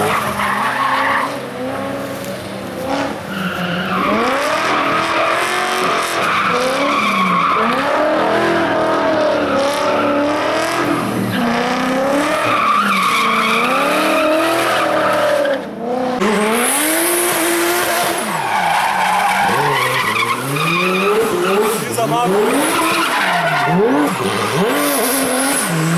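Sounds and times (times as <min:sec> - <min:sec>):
rally car engine revving: 0:00.0 - 0:25.9
tyres squealing: 0:18.1 - 0:25.9.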